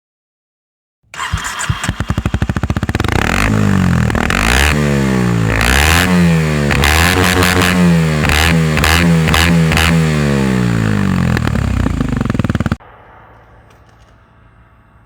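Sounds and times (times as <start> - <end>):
motorcycle engine revving: 1.2 - 12.8.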